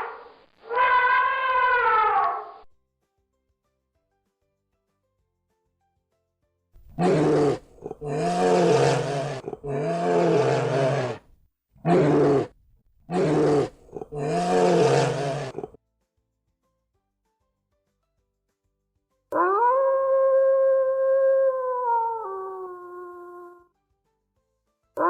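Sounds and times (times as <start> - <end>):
lion roaring: 6.9 - 11.2, 11.8 - 15.8.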